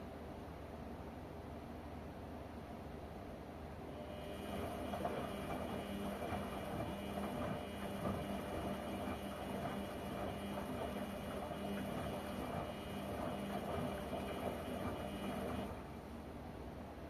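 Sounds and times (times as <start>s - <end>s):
washing machine humming: 3.8s - 16.6s.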